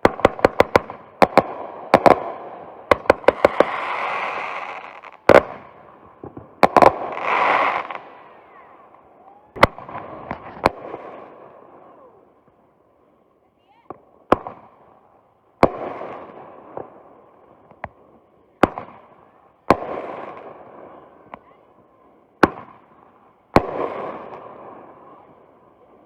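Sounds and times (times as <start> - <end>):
firework bangs: 0.0 - 12.2, 13.8 - 15.0, 15.6 - 18.0, 18.6 - 21.6, 22.4 - 25.6
firework hiss: 2.8 - 5.7, 6.7 - 8.3.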